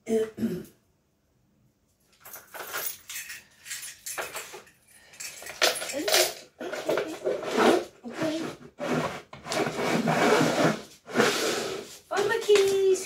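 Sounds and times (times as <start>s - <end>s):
keys jangling and scraping: 2.0s - 6.8s.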